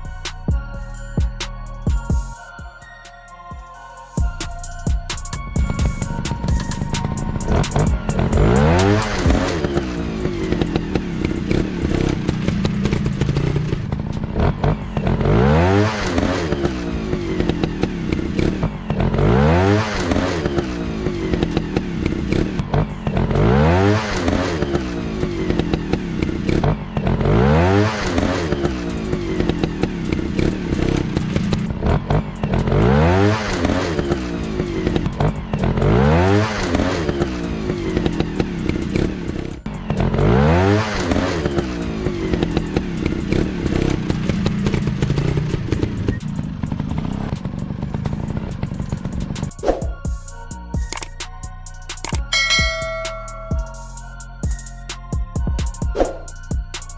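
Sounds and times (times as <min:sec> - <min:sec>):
dirt bike engines revving: 0:05.6 - 0:49.6.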